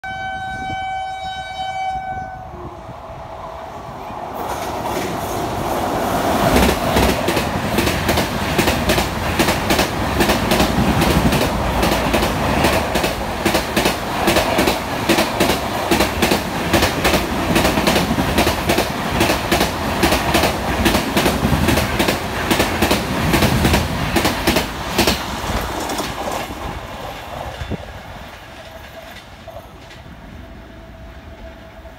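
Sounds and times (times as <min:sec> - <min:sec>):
train horn long note: 0:00.0 - 0:02.9.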